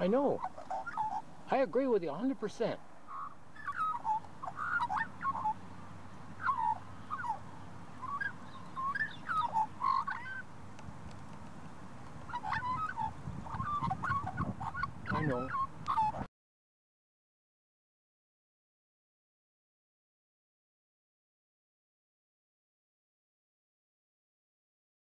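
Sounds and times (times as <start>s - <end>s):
bird chattering warbled calls: 0.0s - 1.6s, 3.1s - 5.6s, 6.4s - 10.5s, 12.3s - 16.3s.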